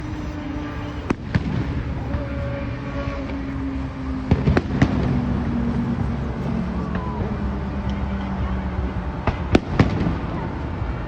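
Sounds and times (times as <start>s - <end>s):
fireworks bangs: 0.0s - 11.0s
low hum: 0.0s - 11.0s.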